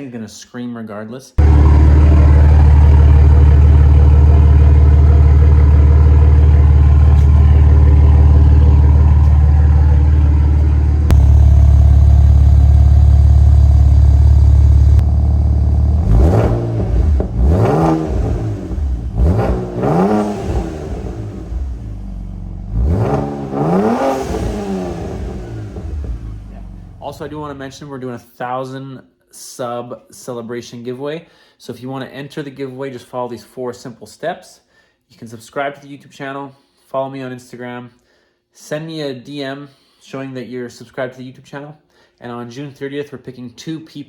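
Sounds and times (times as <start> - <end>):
car engine revving: 1.4 - 27.5
loud car exhaust drone: 1.4 - 27.5.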